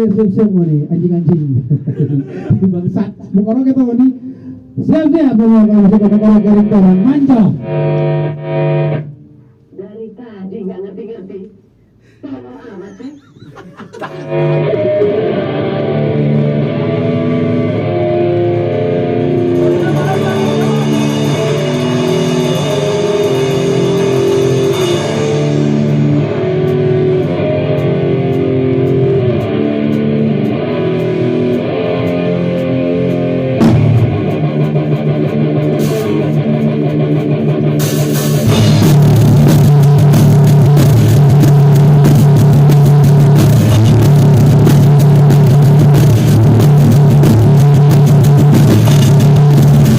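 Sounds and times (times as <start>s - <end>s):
rock band playing: 5.3s - 9.1s, 13.8s - 49.9s
crashing cymbals: 18.6s - 28.0s.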